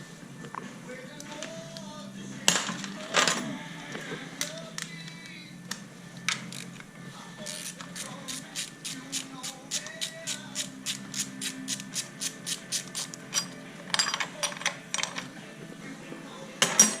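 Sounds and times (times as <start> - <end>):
metal tools clinking and knocking: 13.3 - 15.3, 16.6 - 17.0.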